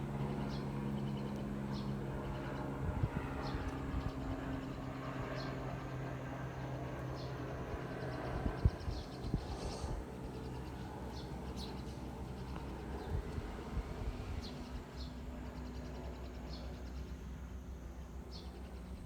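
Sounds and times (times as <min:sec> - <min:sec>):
low mechanical hum: 0:00.0 - 0:19.0
birds chirping: 0:07.0 - 0:17.4.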